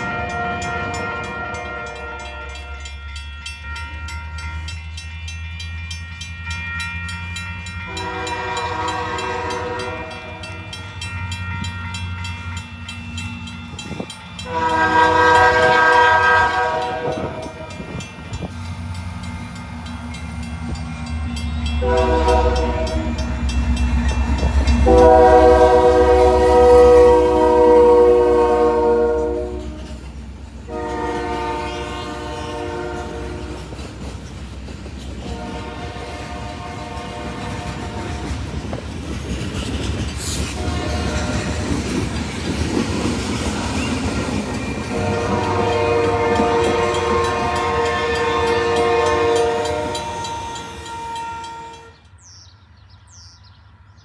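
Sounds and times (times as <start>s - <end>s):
locomotive air horn blasts: 0.0s - 3.0s, 7.5s - 12.2s, 14.4s - 18.0s, 21.8s - 23.4s, 24.8s - 30.0s, 30.7s - 33.8s, 35.2s - 38.4s, 40.5s - 41.6s, 44.9s - 52.0s
locomotive engine rumble: 7.5s - 50.9s.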